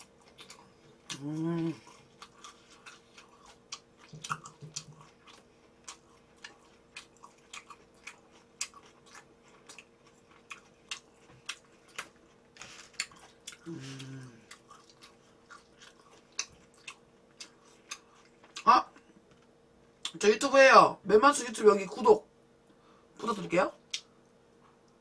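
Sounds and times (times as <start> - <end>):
person chewing food: 0.0 - 20.2
person humming briefly: 1.1 - 1.8, 13.6 - 14.5.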